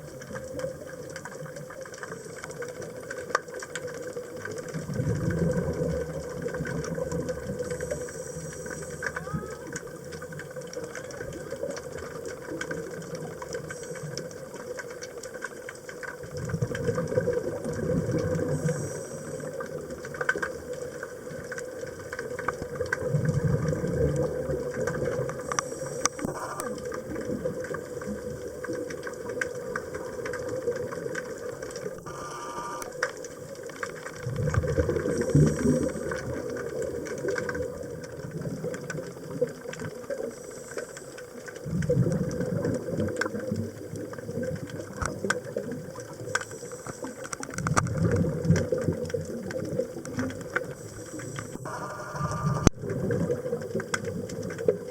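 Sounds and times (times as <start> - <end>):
bubbling underwater exhalations: 16.5 - 18.9, 22.9 - 28.0, 34.2 - 39.5, 41.6 - 46.3, 47.0 - 54.9
regulator inhalation hiss: 18.5 - 19.6, 32.0 - 32.9
steady hum: 25.4 - 26.8, 32.0 - 33.1, 50.7 - 52.8.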